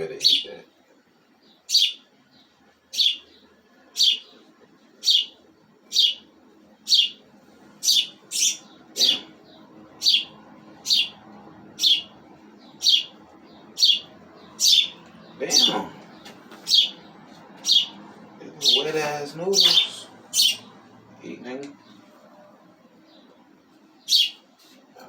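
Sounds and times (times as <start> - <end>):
small bird chirping: 1.3 - 20.9, 22.9 - 24.5.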